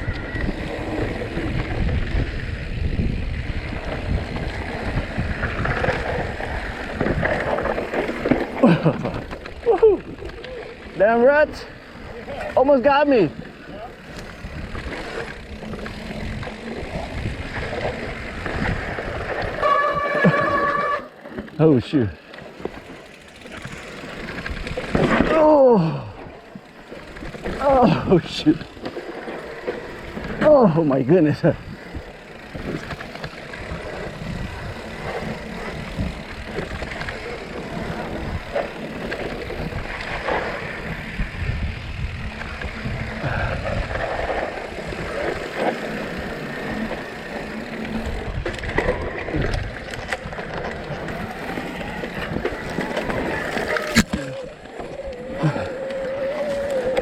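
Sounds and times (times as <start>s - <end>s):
wind on microphone: 0.0s - 7.9s, 39.2s - 45.4s
tyres on dirt and rock: 0.0s - 57.0s
bike knocks and rattles: 3.6s - 10.4s
wind rush: 39.5s - 45.4s.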